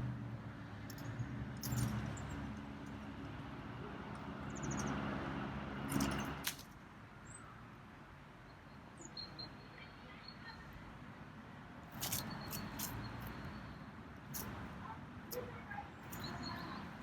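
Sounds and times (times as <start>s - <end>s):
vehicle engine hum: 0.0s - 6.8s
bird chirps: 12.2s - 13.9s, 16.0s - 17.0s.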